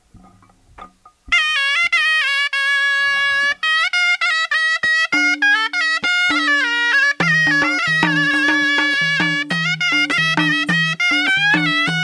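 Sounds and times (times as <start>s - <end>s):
reedy double-reed wind melody: 1.3s - 12.0s.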